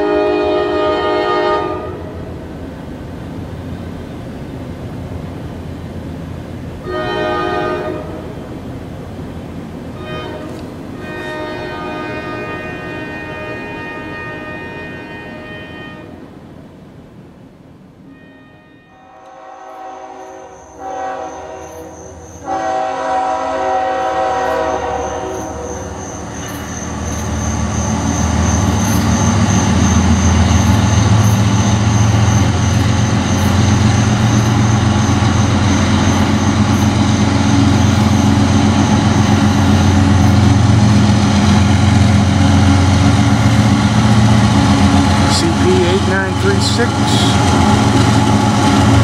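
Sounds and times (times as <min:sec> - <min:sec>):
locomotive horn blasts: 0:00.0 - 0:02.1, 0:06.8 - 0:08.2, 0:10.0 - 0:16.2, 0:18.1 - 0:21.8, 0:22.4 - 0:25.4, 0:45.3 - 0:47.6
deep rumble of diesel engines: 0:26.2 - 0:49.0.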